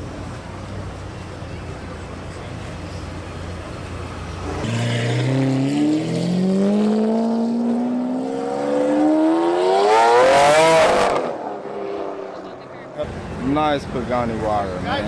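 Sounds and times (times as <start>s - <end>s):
supercar engine revving: 3.8s - 12.4s.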